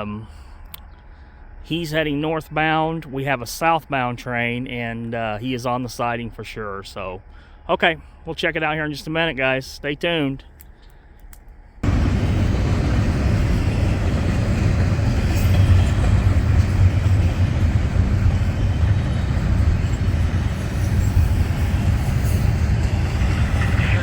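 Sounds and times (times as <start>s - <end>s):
freight train rumbling on rails: 11.8s - 24.0s.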